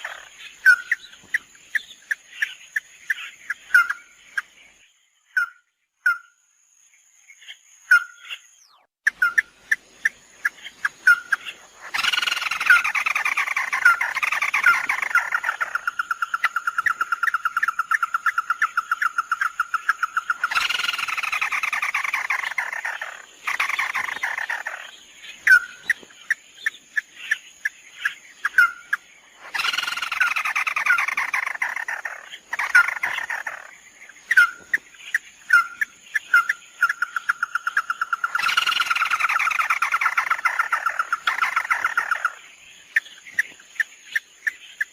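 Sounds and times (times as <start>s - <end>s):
bird trilling: 7.9s - 26.4s, 28.0s - 33.7s, 34.3s - 42.4s.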